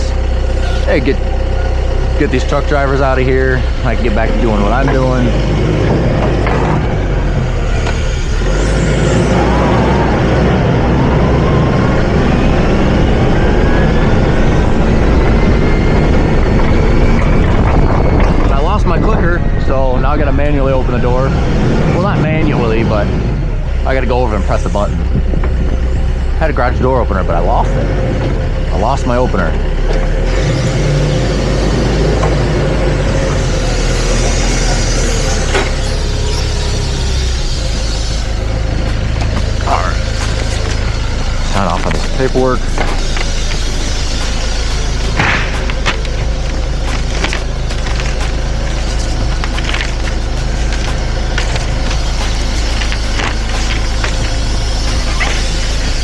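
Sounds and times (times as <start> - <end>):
faint rising whine: 0.0 - 56.0
forklift engine running: 0.0 - 56.0.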